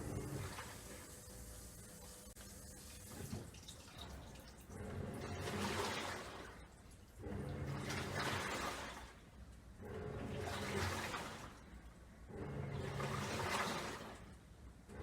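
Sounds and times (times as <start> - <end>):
washing machine agitating: 0.0 - 15.0
water sloshing: 2.9 - 9.2, 10.1 - 11.8.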